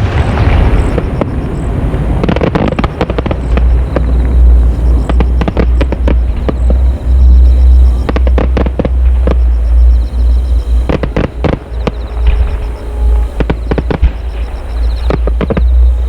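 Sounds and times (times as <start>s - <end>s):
deep low rumble: 0.0s - 16.0s
fireworks bangs and crackles: 0.0s - 16.0s.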